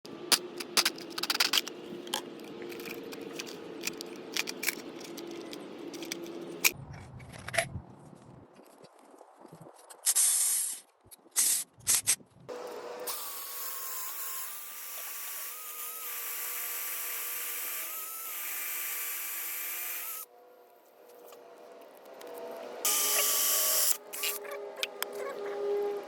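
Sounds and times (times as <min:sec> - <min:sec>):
power drill motor whine: 0:22.9 - 0:24.3.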